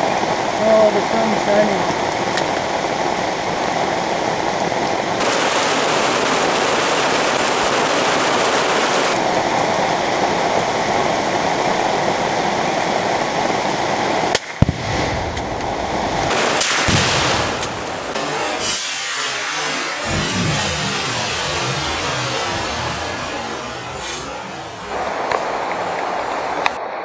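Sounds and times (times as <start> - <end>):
heavy rain on trees: 0.0 - 27.0
rifle shot: 16.3 - 18.7.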